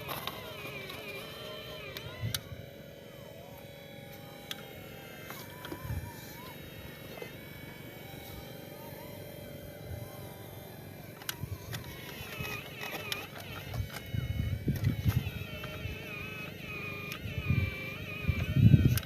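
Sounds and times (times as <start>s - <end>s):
small electric motors whining: 0.0s - 19.0s
sharp clicks: 11.2s - 19.0s.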